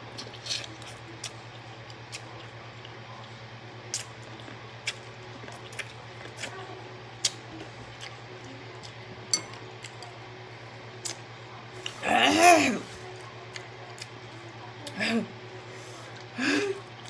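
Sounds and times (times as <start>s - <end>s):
low electrical hum: 0.0s - 17.0s
wet eating clicks and smacks: 3.9s - 6.6s.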